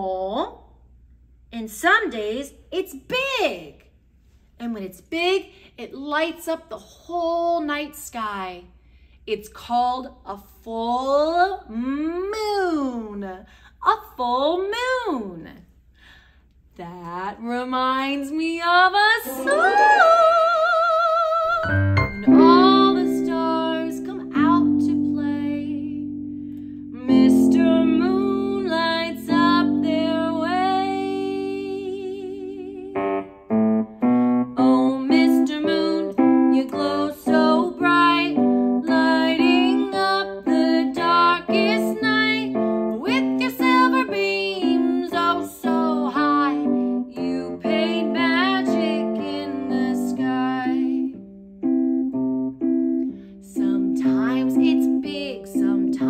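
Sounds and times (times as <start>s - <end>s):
woman singing: 17.0s - 26.1s, 27.0s - 33.0s, 34.6s - 51.2s, 53.5s - 56.0s
piano accompaniment: 21.5s - 56.0s.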